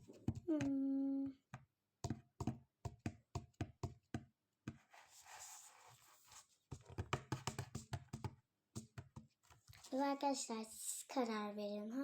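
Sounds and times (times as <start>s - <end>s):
soft rustle: 4.9s - 6.7s.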